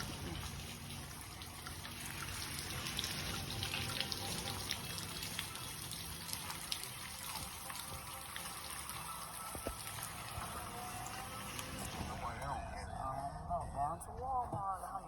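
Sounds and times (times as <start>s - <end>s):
drops dripping and ticking: 0.0s - 12.0s.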